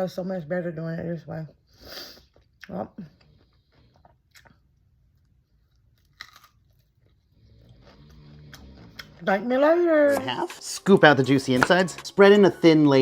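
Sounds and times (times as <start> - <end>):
crunching and chewing food: 2.2 - 9.3.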